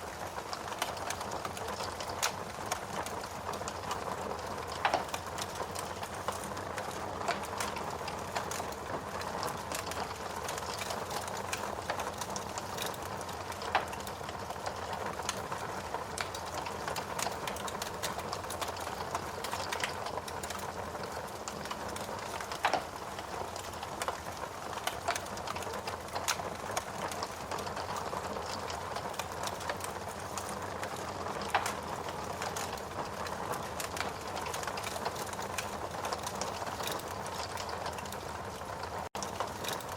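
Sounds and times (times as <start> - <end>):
wood fire crackling: 0.0 - 39.9
logs popping: 18.5 - 38.1.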